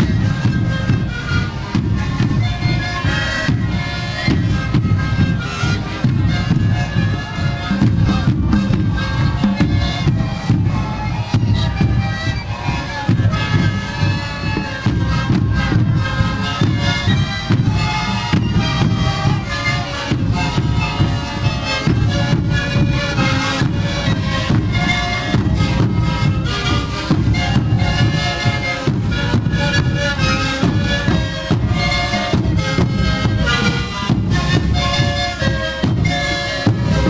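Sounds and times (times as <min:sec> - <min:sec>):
panpipes ensemble playing: 0:00.0 - 0:37.0
steady drum beat: 0:00.0 - 0:37.0.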